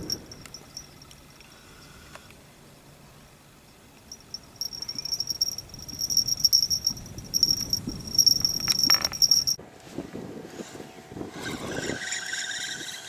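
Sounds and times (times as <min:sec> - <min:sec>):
insect trilling: 0:04.1 - 0:09.6.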